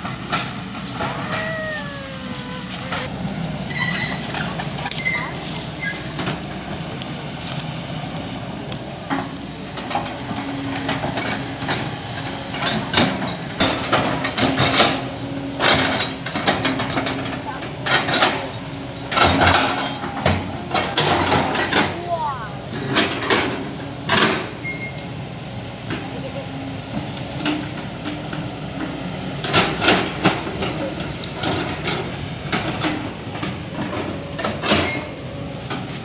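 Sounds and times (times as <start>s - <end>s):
excavator diesel engine running: 0.0s - 36.0s
high squeals: 1.0s - 3.1s.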